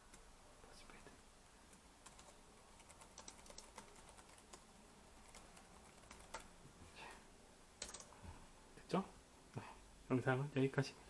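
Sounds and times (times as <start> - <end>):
laptop keys clicking: 1.7 - 4.6, 5.2 - 6.5, 7.8 - 8.1.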